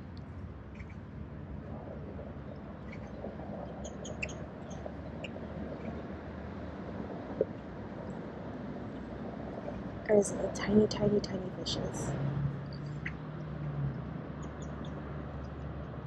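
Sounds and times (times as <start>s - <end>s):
low outdoor background rumble: 0.0s - 16.0s
small birds chirping: 2.5s - 6.0s, 14.4s - 15.8s.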